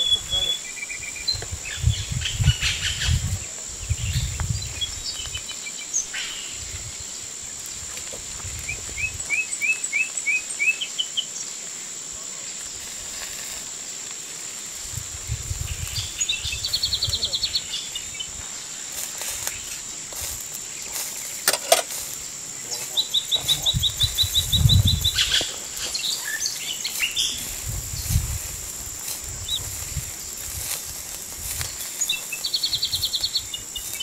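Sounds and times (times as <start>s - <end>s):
birds chirping: 0.0s - 7.2s, 15.8s - 19.8s, 20.4s - 28.4s, 29.4s - 34.0s
high-pitched insect drone: 0.0s - 34.0s.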